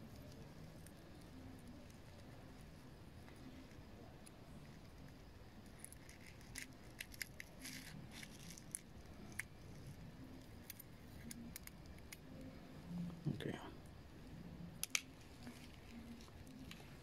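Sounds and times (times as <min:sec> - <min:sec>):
metal tweezers ticking and scratching: 0:00.0 - 0:12.5.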